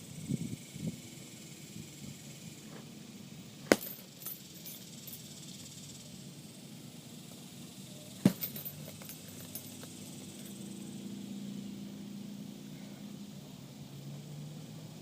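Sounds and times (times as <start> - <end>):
punches hitting heavy bag: 3.7 - 4.0, 8.2 - 8.7.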